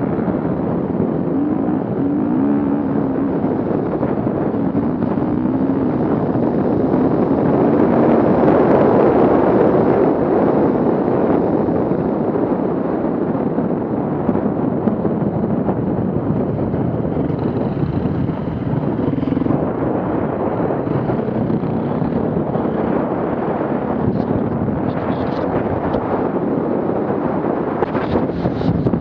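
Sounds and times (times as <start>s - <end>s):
off-road vehicle engine running: 15.6s - 29.0s.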